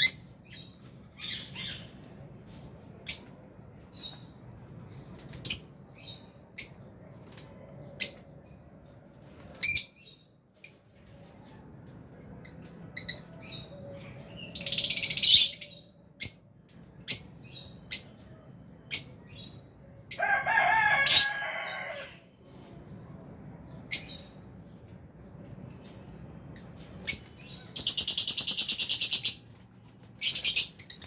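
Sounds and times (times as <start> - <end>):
lovebirds chirping shrilly: 30.2 - 31.0.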